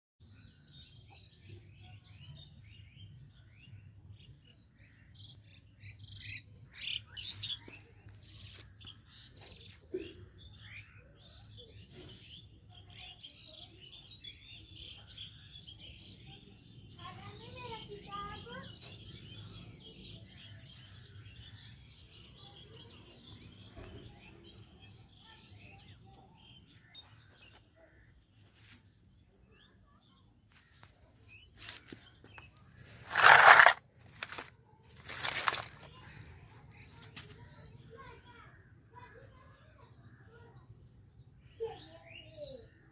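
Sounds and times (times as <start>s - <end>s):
small birds chirping: 0.2s - 42.9s
rough bursts: 33.0s - 35.8s.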